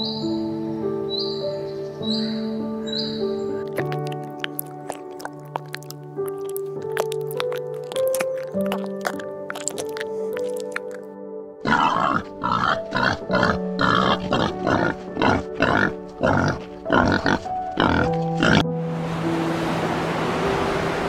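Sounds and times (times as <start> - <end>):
soft background music: 0.0 - 21.0
wild boars grunting: 3.6 - 18.6.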